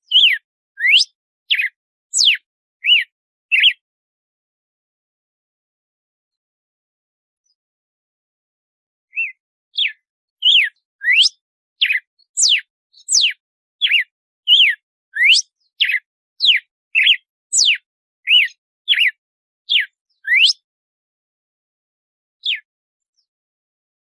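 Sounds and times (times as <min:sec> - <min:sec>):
bird whistling short notes: 0:00.1 - 0:03.8, 0:09.1 - 0:20.6.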